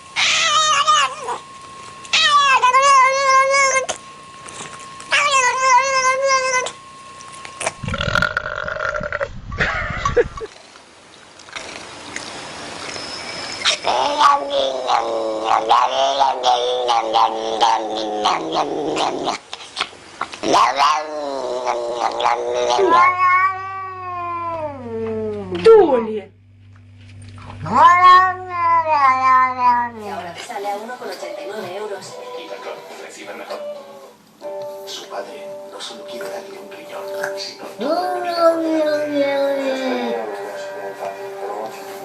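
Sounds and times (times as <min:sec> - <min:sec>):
cat yowling: 0:00.2 - 0:01.4, 0:02.1 - 0:03.9, 0:05.1 - 0:06.8, 0:13.6 - 0:19.4, 0:20.4 - 0:25.4, 0:27.6 - 0:30.1, 0:33.5 - 0:34.2, 0:37.8 - 0:40.4.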